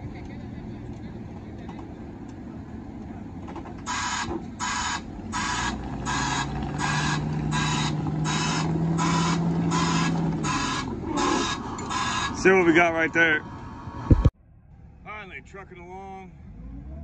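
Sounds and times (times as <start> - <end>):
engine humming: 0.0 - 17.0
reversing alarm pulses: 3.9 - 12.4.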